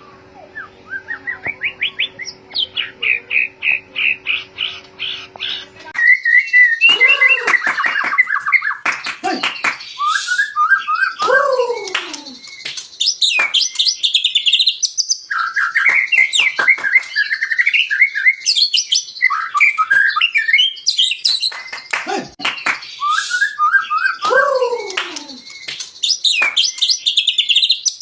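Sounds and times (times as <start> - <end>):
songbird singing whistled phrases: 0.0 - 4.4, 6.0 - 8.8, 9.4 - 28.0.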